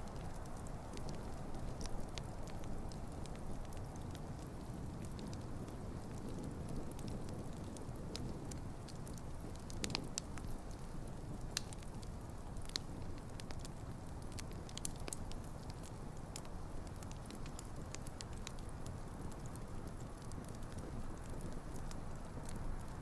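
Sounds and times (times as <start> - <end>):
campfire flames rushing: 0.0 - 23.0
fire crackles and pops: 0.0 - 23.0.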